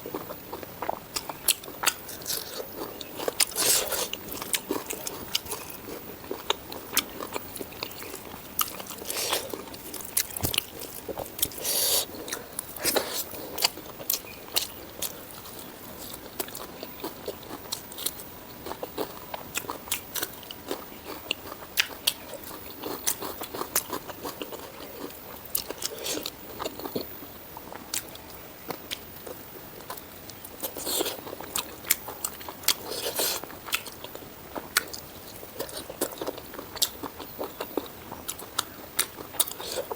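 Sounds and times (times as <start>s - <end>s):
person biting and chewing: 0.1s - 27.1s, 35.6s - 39.9s.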